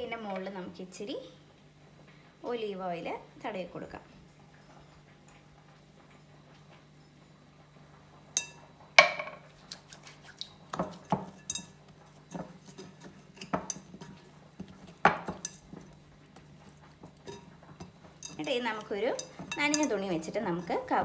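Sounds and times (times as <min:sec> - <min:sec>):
kitchenware clinking and knocking: 0:08.4 - 0:09.5, 0:17.1 - 0:20.9.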